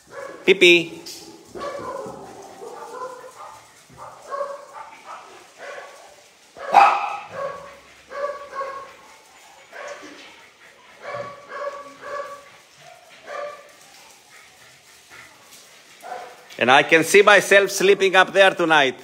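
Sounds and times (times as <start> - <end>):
dogs barking: 0.0 - 18.3.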